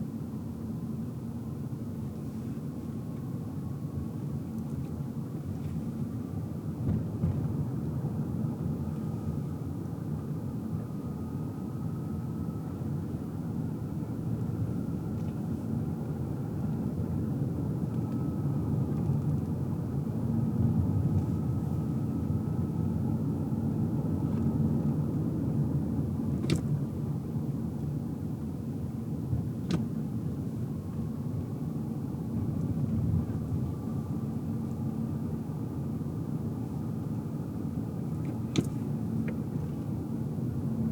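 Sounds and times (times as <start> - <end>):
faint high whine: 8.2 - 26.2.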